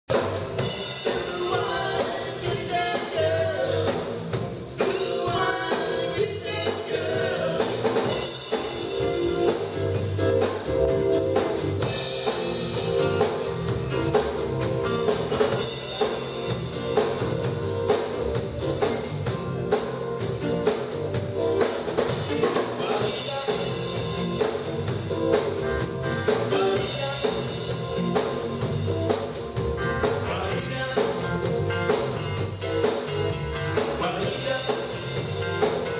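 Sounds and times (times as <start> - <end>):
live band playing: 0.1 - 35.9
person singing: 1.0 - 8.3, 22.2 - 24.6, 26.3 - 28.1, 30.0 - 31.7, 33.8 - 35.4.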